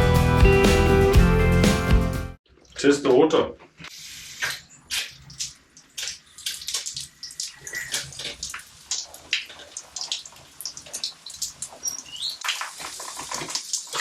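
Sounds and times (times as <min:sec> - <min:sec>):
water splashing and dripping: 0:02.4 - 0:03.2, 0:03.9 - 0:14.0.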